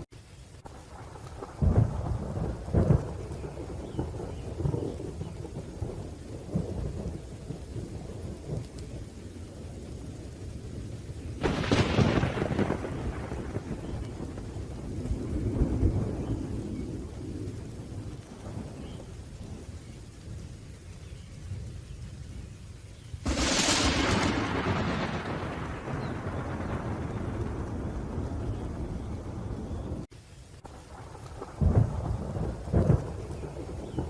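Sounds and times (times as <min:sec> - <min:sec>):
rolling thunder: 0:00.0 - 0:22.6, 0:23.2 - 0:34.0
steady rain: 0:00.0 - 0:34.0
sharp thunderclap: 0:00.9 - 0:08.8, 0:11.4 - 0:19.7, 0:23.2 - 0:30.1, 0:30.7 - 0:34.0.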